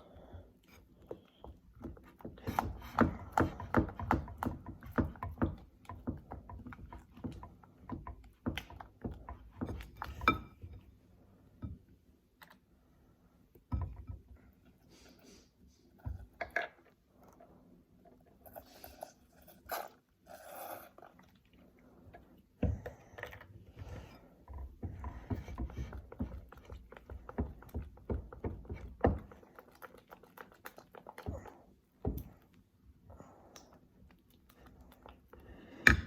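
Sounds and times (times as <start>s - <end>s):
wet slime squelching: 18.6s - 36.0s.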